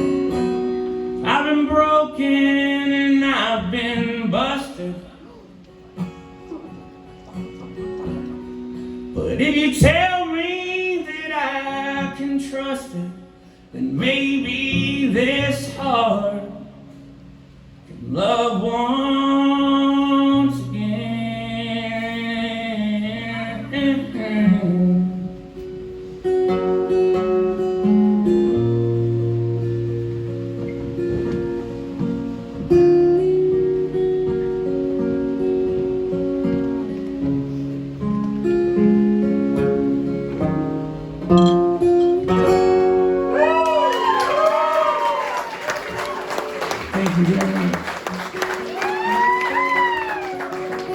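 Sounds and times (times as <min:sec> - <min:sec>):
acoustic guitar: 0:00.0 - 0:50.9
man singing: 0:01.2 - 0:05.6, 0:09.1 - 0:16.8, 0:17.9 - 0:25.4
person whooping: 0:43.3 - 0:46.8, 0:48.4 - 0:50.9.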